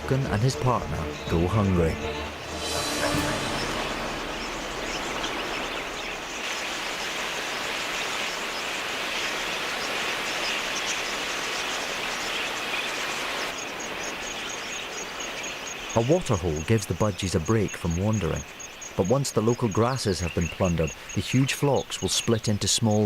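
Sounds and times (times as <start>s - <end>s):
budgerigars chattering: 3.6s - 7.2s, 14.4s - 23.0s.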